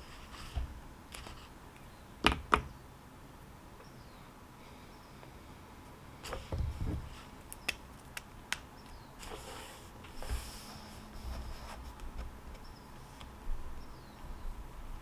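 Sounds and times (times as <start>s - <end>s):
faint bird chirps: 3.8s - 5.3s, 12.6s - 13.0s, 13.7s - 14.6s
soft low thumps on desk: 6.5s - 7.2s.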